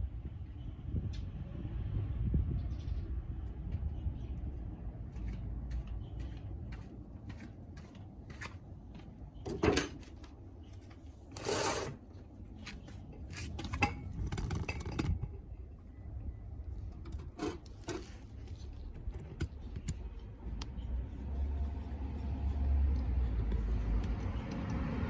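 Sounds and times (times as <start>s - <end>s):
metal tools clicking and knocking: 9.5s - 10.2s, 13.1s - 15.4s, 16.9s - 18.2s
metal scrape: 11.3s - 12.0s, 17.0s - 18.3s.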